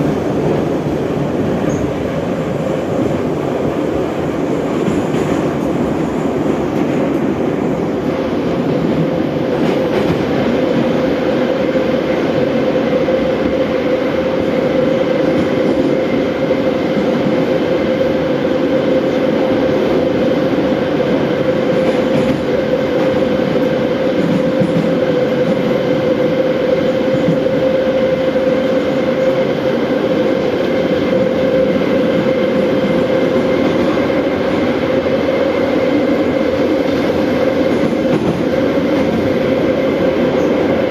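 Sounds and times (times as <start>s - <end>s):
train wheels rumbling: 0.0s - 40.9s.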